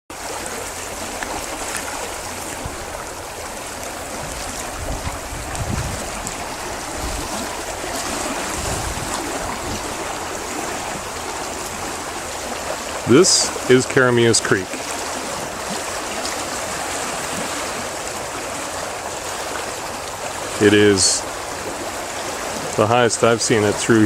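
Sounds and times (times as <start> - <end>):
creek water rushing: 0.1 - 24.0
low rumbles: 0.2 - 14.4.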